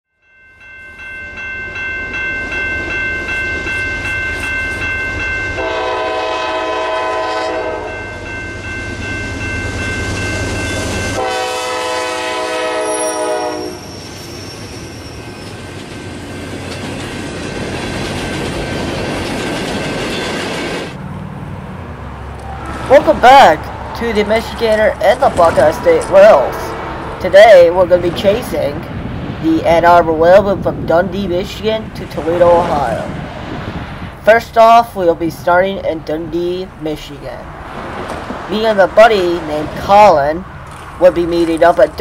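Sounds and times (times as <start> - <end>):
locomotive horn blasts: 5.6 - 8.1, 11.1 - 13.9
wheels clattering on rails: 15.0 - 21.0, 22.3 - 29.1.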